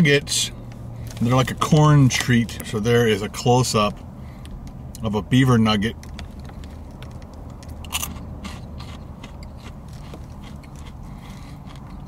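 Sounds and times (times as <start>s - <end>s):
crunching puffed corn snack: 6.5s - 12.0s.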